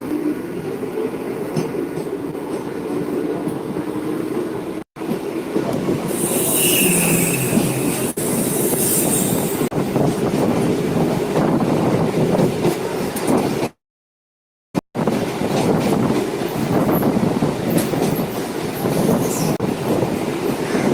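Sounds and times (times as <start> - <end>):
train wheels clickety-clack: 1.5 - 3.7, 5.0 - 13.8, 15.0 - 20.9
high wheel squeal: 6.1 - 9.7.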